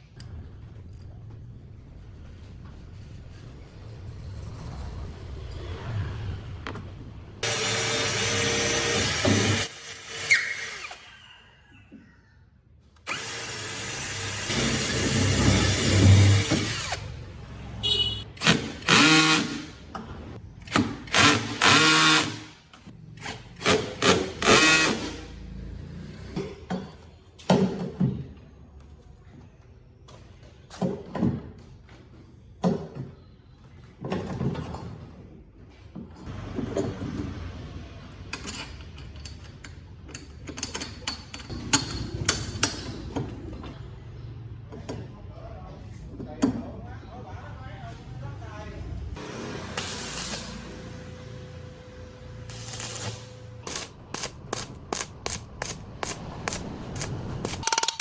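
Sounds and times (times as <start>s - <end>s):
power tool running: 7.4s - 11.0s.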